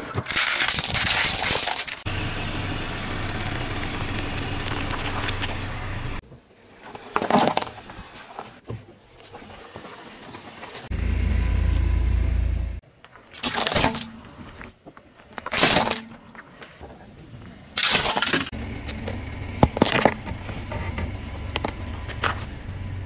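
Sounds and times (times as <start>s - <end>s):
car engine and tyre rumble: 1.7s - 12.8s, 18.5s - 23.0s.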